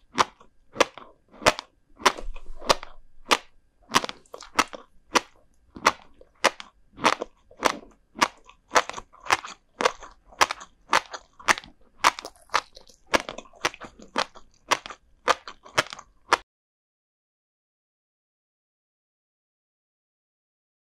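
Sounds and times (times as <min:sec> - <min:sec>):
crunchy chewing: 0:00.0 - 0:16.4.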